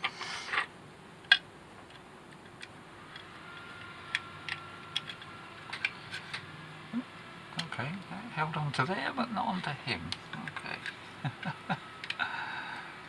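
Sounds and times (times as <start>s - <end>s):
plastic parts clicking: 1.2s - 6.4s, 10.1s - 12.2s.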